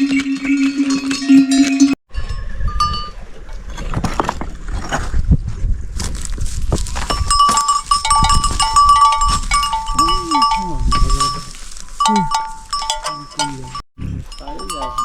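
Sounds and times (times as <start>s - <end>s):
livestock bells clinking: 0.6s - 3.3s, 7.0s - 15.0s.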